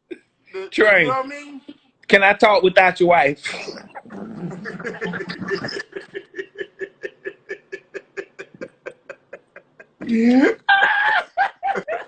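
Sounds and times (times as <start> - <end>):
person laughing: 3.5 - 12.0.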